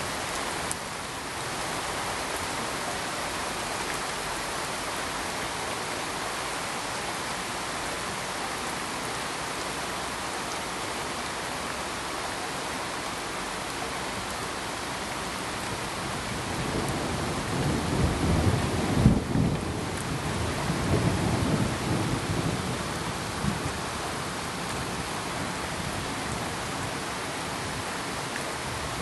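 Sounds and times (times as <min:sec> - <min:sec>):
steady pink noise hiss: 0:00.0 - 0:21.6.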